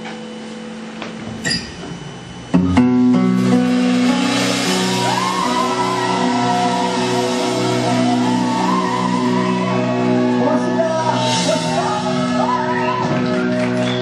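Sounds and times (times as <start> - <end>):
rock band playing live: 2.6 - 14.0
person singing: 4.2 - 14.0.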